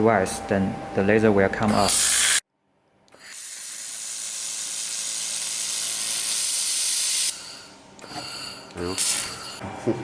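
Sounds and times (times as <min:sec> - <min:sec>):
laser welding gun hissing: 0:01.7 - 0:02.4, 0:03.2 - 0:09.6.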